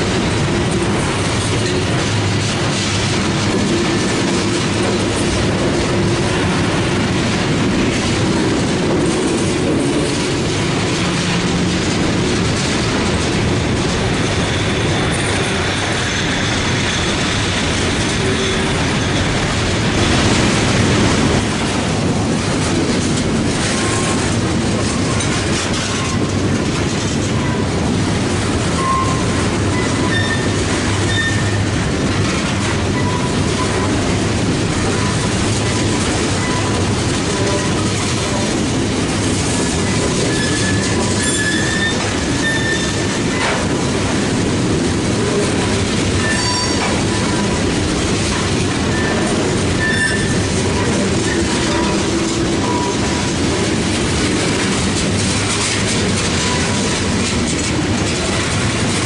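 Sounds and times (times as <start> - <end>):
freight train wheels rumbling on rail: 0.0 - 59.0
high wheel squeals: 28.8 - 31.7, 40.2 - 43.1, 46.2 - 47.4, 48.9 - 50.4.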